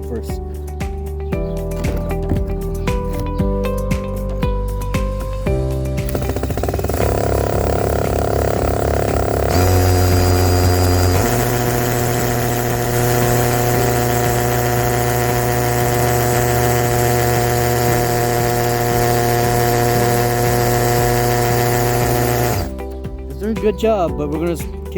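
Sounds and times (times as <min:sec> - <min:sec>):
hammer drill drilling into brick: 0:01.7 - 0:03.5, 0:05.5 - 0:22.8.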